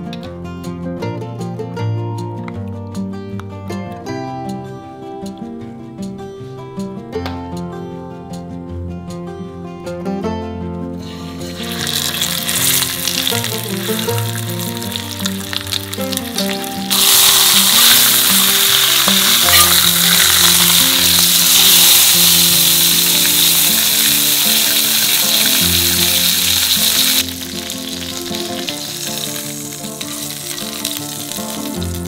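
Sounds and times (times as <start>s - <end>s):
background music: 0.0s - 32.0s
pork sizzling in hot oil: 11.1s - 32.0s.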